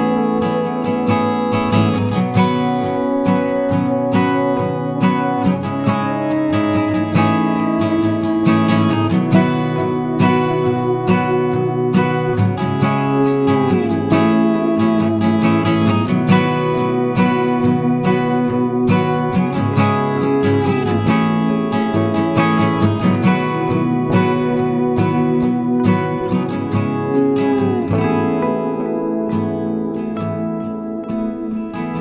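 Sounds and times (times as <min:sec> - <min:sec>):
strummed acoustic guitar: 0:00.0 - 0:32.0.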